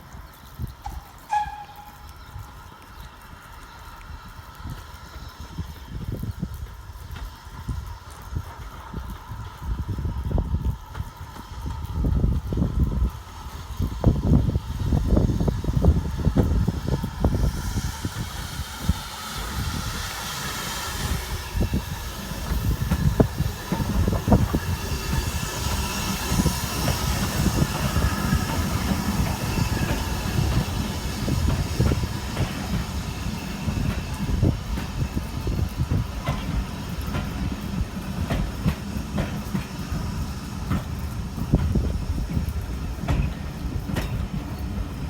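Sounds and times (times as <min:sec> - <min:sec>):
train wheels rumbling and clicking: 0:00.0 - 0:45.0
wheel squeal on rail: 0:00.8 - 0:02.5, 0:15.7 - 0:45.0.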